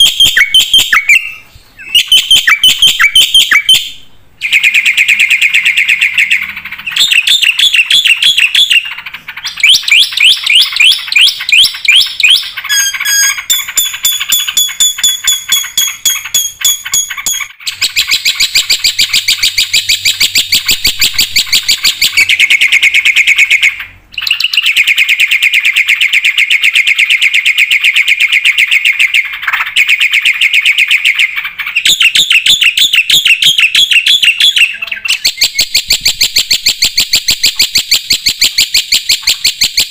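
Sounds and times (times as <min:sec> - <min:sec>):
bird chattering song: 0:00.0 - 0:39.9
bird high whistles: 0:09.7 - 0:22.3.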